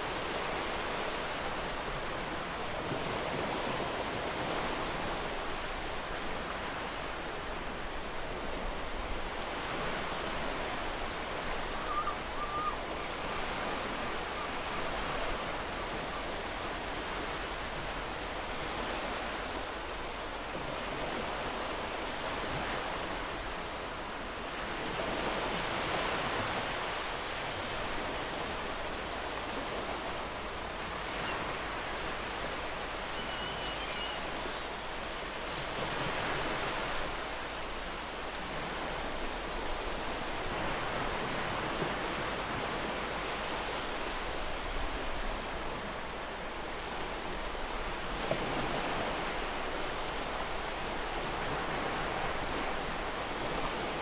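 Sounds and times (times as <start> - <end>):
ocean surf breaking: 24.6 - 54.0.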